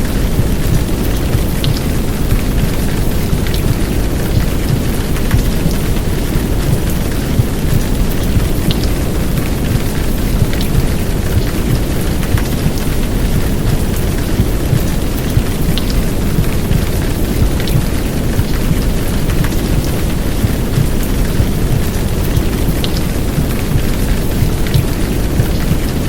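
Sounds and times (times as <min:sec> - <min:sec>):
heavy rain downpour: 0:00.0 - 0:26.0
raindrop ticks: 0:00.0 - 0:26.0.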